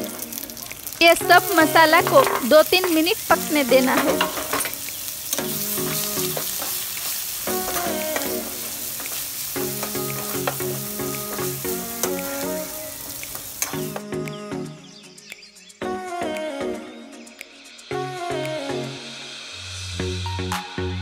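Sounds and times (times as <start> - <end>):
food sizzling in hot oil: 0.0 - 14.2
light background music: 0.0 - 21.0
steel spoon scraping pan: 1.4 - 11.4
spoon clicking on pan: 4.0 - 14.0.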